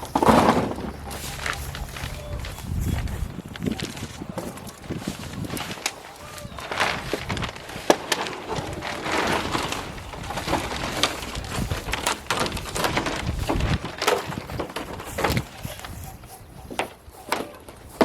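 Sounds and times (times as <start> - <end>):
knocks and clicks of building work: 6.6 - 18.0.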